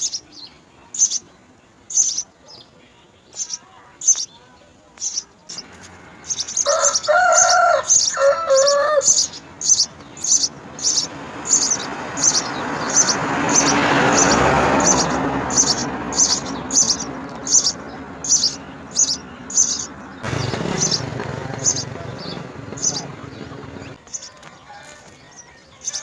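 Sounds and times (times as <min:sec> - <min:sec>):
sparrows chirping: 0:00.0 - 0:26.0
broad rushing noise: 0:05.5 - 0:24.0
rooster crowing: 0:06.3 - 0:09.8, 0:22.8 - 0:26.0.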